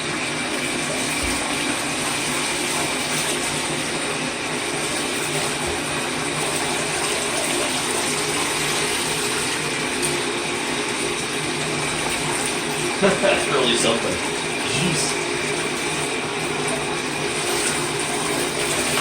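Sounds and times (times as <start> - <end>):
tap water running into tub: 0.0 - 19.0.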